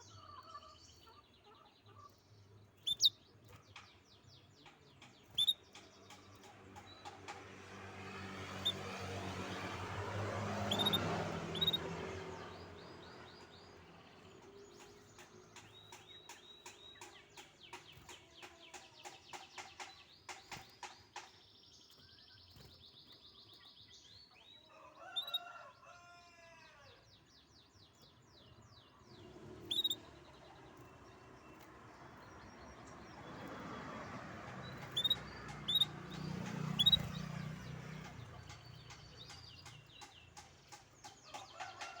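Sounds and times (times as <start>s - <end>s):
canary singing: 2.8s - 3.2s, 5.2s - 5.6s, 8.5s - 9.7s, 10.5s - 12.8s, 25.2s - 25.5s, 29.2s - 30.3s, 34.5s - 40.4s.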